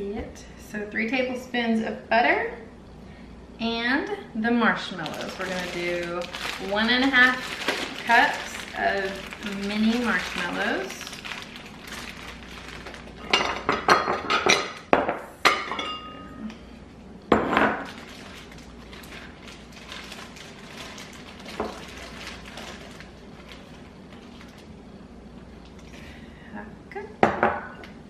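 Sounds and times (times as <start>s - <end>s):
kitchenware clatter: 13.2s - 16.3s.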